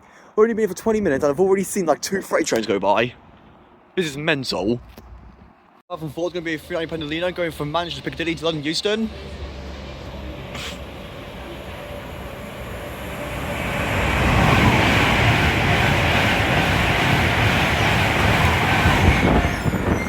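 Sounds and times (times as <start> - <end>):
electric train passing at speed: 6.3 - 20.0.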